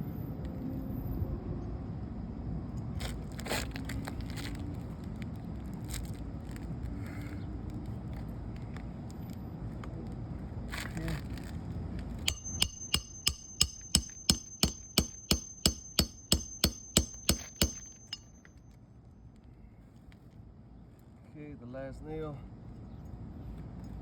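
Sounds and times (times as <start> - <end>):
hammer striking nail: 12.3 - 18.4.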